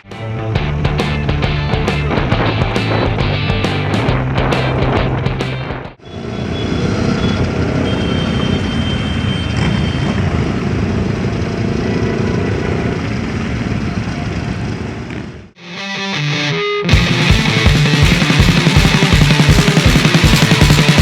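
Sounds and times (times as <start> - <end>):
many motorcycle engines running: 6.0 - 15.6, 17.3 - 21.0.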